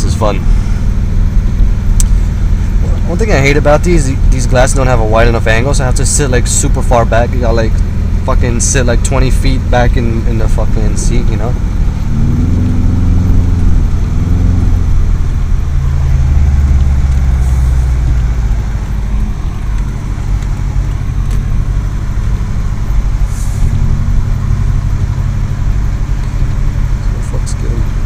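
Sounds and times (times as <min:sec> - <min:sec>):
car engine droning: 0:00.0 - 0:28.0.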